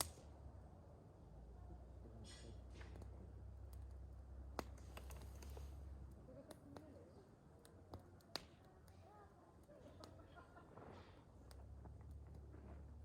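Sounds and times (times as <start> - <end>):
campfire crackling and popping: 2.9 - 13.0.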